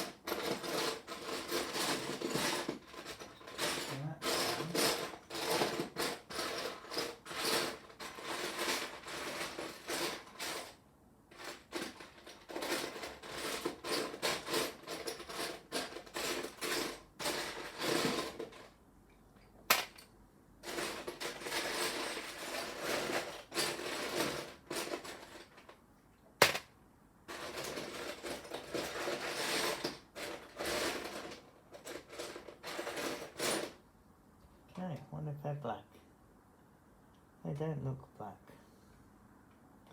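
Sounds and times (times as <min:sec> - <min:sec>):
plastic toy bricks clattering: 0:00.0 - 0:18.8, 0:19.7 - 0:25.8, 0:27.3 - 0:33.8.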